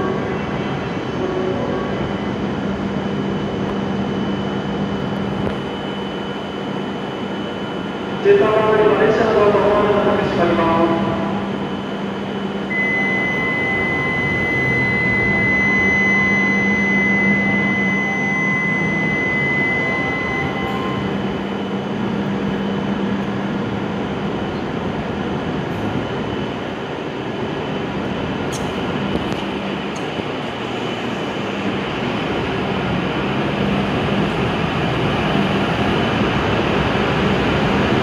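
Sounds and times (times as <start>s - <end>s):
train equipment humming: 0.0s - 38.0s
high electronic tone: 12.6s - 22.8s.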